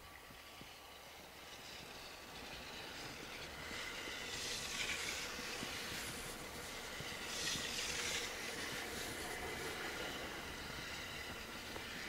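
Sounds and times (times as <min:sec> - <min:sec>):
train rushing hiss through snow: 0:00.0 - 0:12.0.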